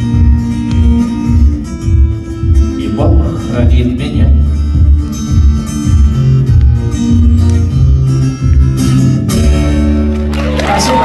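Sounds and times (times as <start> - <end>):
audience applauding and cheering: 9.6 - 11.0.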